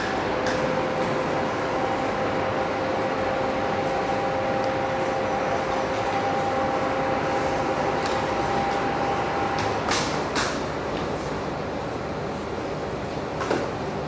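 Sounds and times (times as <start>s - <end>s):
floor grinder mechanical noise: 0.0s - 10.2s
two-tone motor whine: 0.1s - 9.9s.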